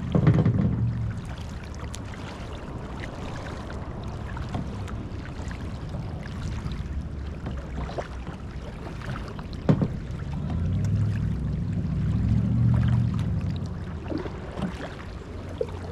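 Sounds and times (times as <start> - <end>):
low rumble: 0.0 - 15.9
paddle splashing in water: 0.0 - 15.9.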